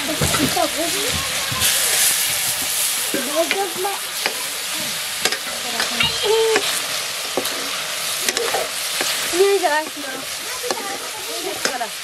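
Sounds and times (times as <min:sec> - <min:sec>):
chicken sizzling in a wok: 0:00.0 - 0:12.0
steel spoon scraping pan: 0:05.2 - 0:11.9.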